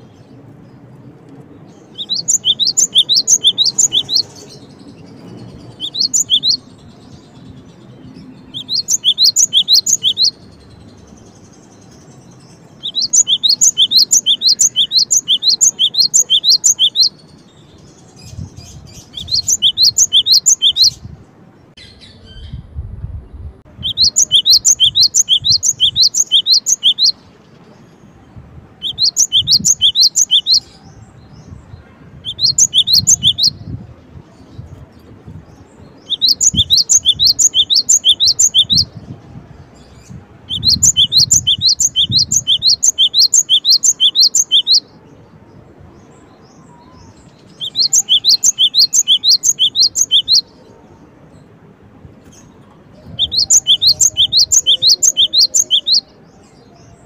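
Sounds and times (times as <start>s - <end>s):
bird singing high sharp notes: 2.0s - 5.0s, 5.7s - 6.9s, 8.3s - 10.6s, 12.6s - 21.1s, 23.8s - 27.2s, 28.8s - 30.8s, 31.5s - 33.7s, 36.0s - 39.0s, 40.5s - 44.9s, 47.5s - 50.5s, 53.0s - 56.1s.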